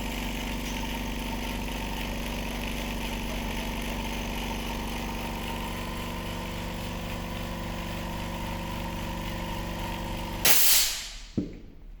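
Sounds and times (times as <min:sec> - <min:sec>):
pump running: 0:00.0 - 0:10.7
air hissing: 0:10.4 - 0:11.4
sharp click: 0:10.5 - 0:11.4.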